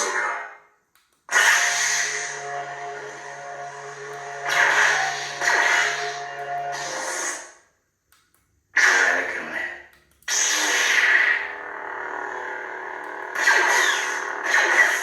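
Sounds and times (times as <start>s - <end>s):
lightsaber effect burst: 1.3s - 7.5s, 10.3s - 15.0s
lightsaber blade humming: 1.3s - 7.6s, 10.2s - 15.0s.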